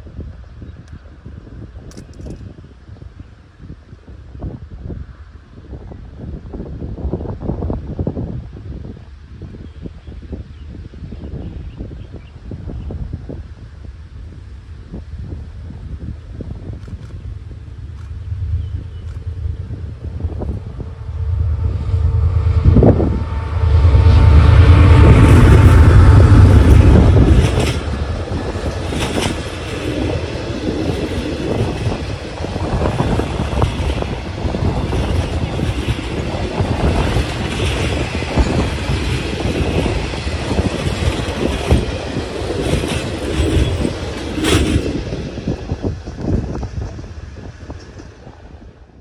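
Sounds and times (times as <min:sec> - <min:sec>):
locomotive engine rumble: 0:13.6 - 0:49.0
train wheels clattering on rails: 0:23.8 - 0:48.8.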